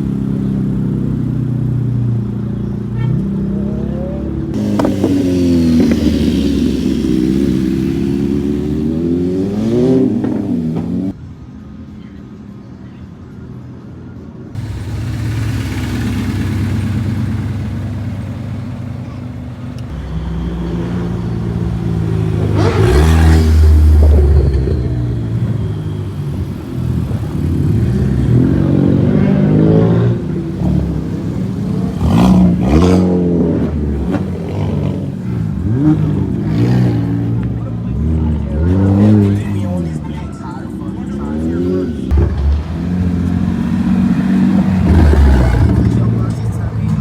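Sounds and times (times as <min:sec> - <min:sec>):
car engines revving: 0:00.0 - 0:11.2, 0:14.6 - 0:47.0.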